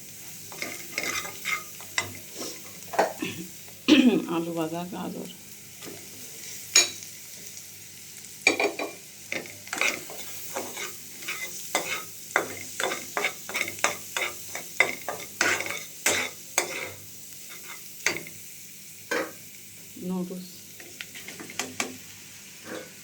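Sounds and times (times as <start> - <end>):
faint sizzle: 0.0 - 23.0
spatula scraping and knocking in pan: 0.4 - 3.2, 8.5 - 18.4, 19.1 - 19.4, 20.8 - 23.0.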